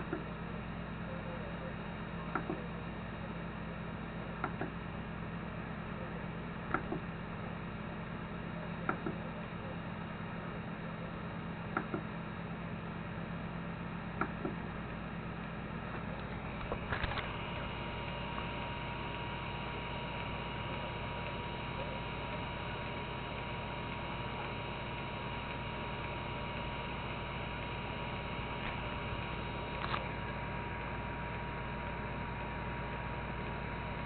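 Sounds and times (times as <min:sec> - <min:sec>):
electrical hum and fan whine: 0:00.0 - 0:34.0
probe pin light clicks: 0:06.7 - 0:07.0.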